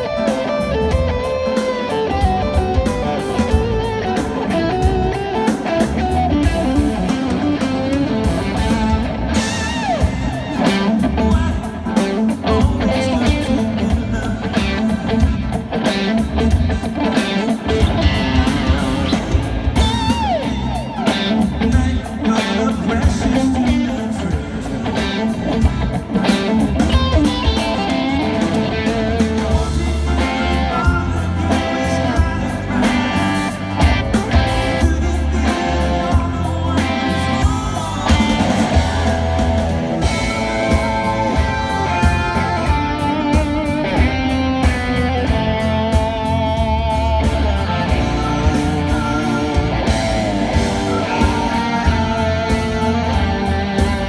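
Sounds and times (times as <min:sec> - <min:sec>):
electric guitar: 0:00.0 - 0:54.0
rock band playing live: 0:00.0 - 0:54.0.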